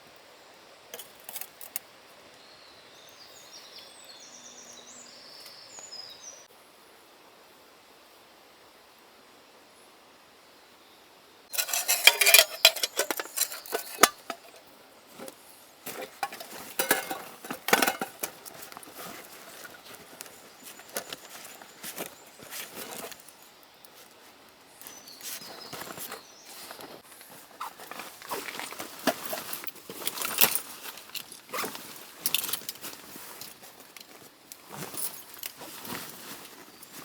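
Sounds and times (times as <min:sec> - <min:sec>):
camping gear clinking and rustling: 0:00.9 - 0:01.8, 0:11.5 - 0:37.0.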